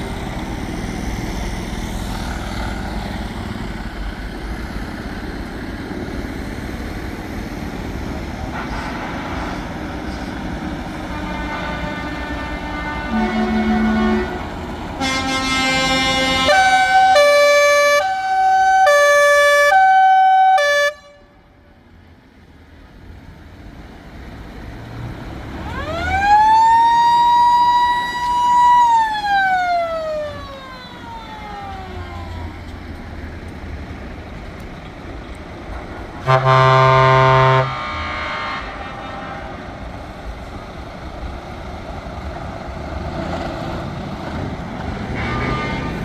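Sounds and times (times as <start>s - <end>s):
truck air horn chord blast: 10.8s - 21.4s, 36.2s - 39.8s, 45.0s - 46.0s
two-tone horn: 10.9s - 21.4s, 36.2s - 39.8s, 45.0s - 46.0s.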